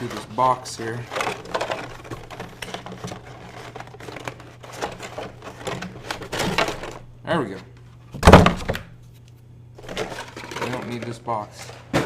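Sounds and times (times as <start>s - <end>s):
cardboard packaging being handled: 0.0s - 7.6s, 9.8s - 11.1s.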